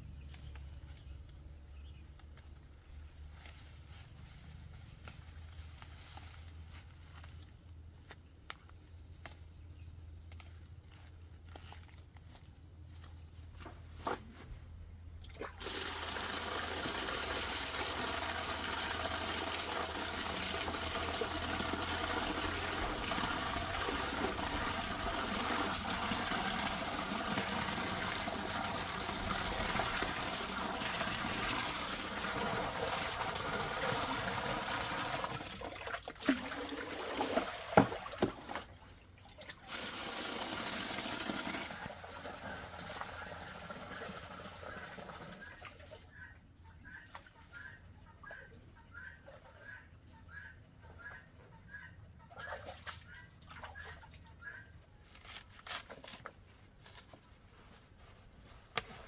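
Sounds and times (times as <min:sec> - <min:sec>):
water running: 0:15.6 - 0:38.6.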